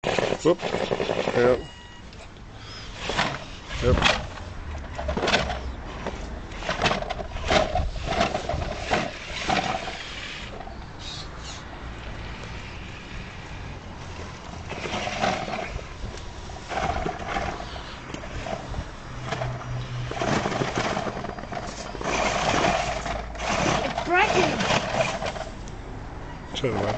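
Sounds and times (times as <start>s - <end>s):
electric motor and gears whining: 0.0s - 25.8s
knocks and clatters: 3.0s - 9.9s, 19.2s - 25.5s.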